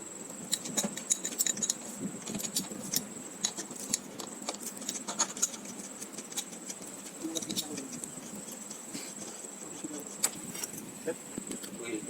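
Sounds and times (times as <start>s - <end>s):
small metal pieces clinking: 0.5s - 4.0s.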